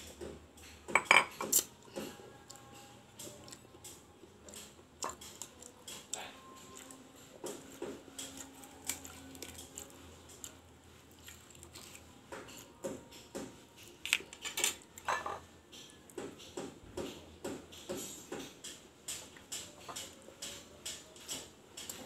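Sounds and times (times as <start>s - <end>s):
cutlery against a plate: 0.0s - 10.5s, 11.6s - 22.0s
chewing clicks and snaps: 2.5s - 7.0s, 8.2s - 10.6s.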